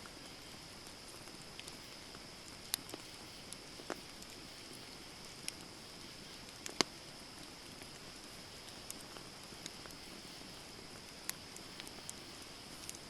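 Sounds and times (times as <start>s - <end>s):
steady high hiss: 0.0s - 13.0s
campfire pops and snaps: 0.1s - 13.0s.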